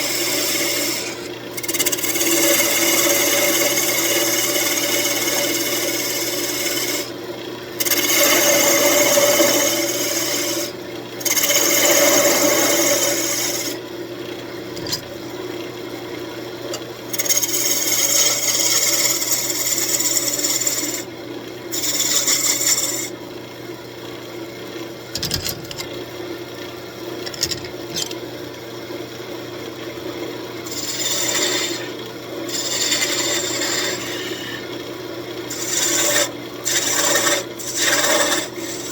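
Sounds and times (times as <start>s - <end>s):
tool cutting spinning wood: 0.0s - 7.1s, 7.8s - 13.8s, 14.7s - 15.2s, 16.7s - 21.1s, 21.7s - 23.2s, 25.1s - 26.0s, 27.2s - 28.3s, 30.6s - 34.6s, 35.5s - 38.9s
wood lathe motor hum: 0.0s - 13.8s, 17.0s - 23.2s, 30.6s - 38.9s.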